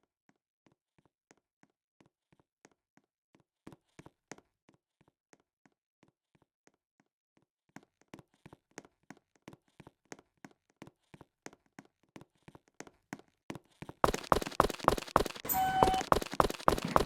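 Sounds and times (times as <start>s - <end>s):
footsteps on a hard floor: 14.0s - 17.0s
loud sharp knocks: 14.1s - 17.0s.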